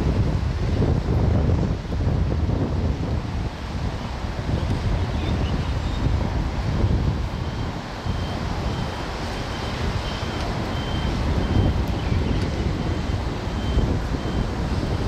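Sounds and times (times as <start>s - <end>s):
wind buffeting microphone: 0.0s - 15.0s
faint high beep: 7.4s - 14.5s.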